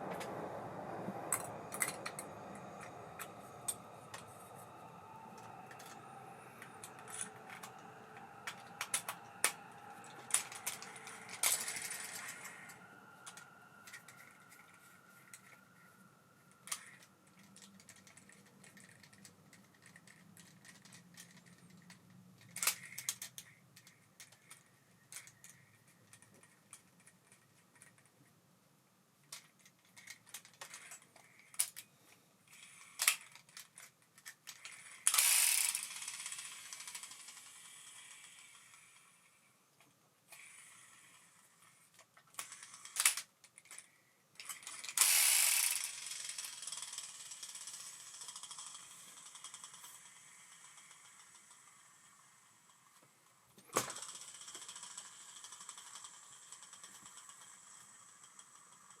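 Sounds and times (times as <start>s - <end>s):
fishing reel whine: 1.2s - 17.2s, 34.6s - 39.0s, 44.7s - 52.7s
fishing reel rattle: 1.3s - 15.6s, 32.6s - 39.3s, 40.3s - 52.9s, 53.8s - 59.0s
fishing reel gears clicking: 34.4s - 39.0s, 44.4s - 52.5s, 54.0s - 59.0s.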